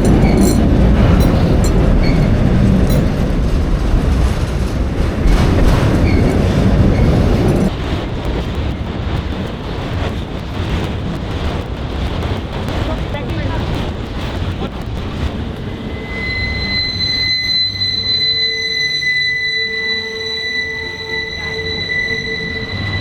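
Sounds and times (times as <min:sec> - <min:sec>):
train wheels clacking on rails: 0:00.0 - 0:16.0.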